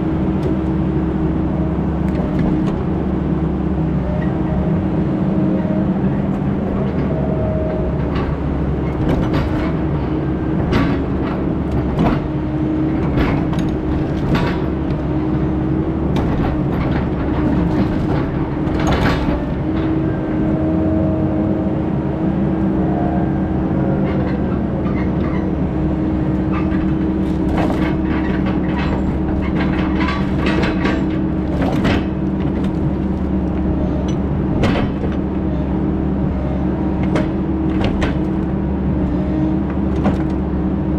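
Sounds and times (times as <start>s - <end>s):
diesel engine running: 0.0s - 40.9s
rattles and knocks: 8.0s - 20.1s, 24.0s - 35.5s, 37.0s - 38.6s.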